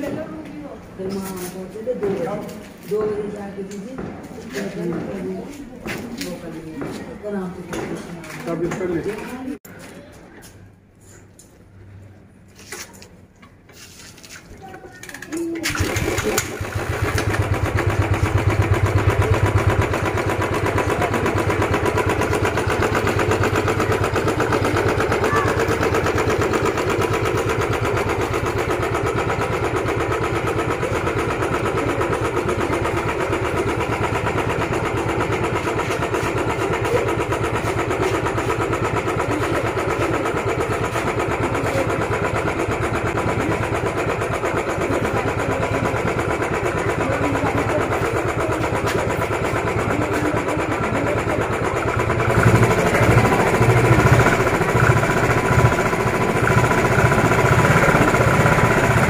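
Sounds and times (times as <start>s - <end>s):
motorcycle engine revving: 15.6s - 59.0s.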